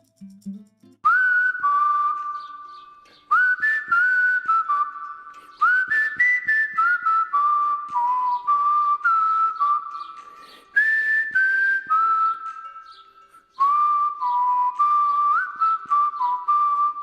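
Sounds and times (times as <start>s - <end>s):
whistled melody: 0.0s - 17.0s.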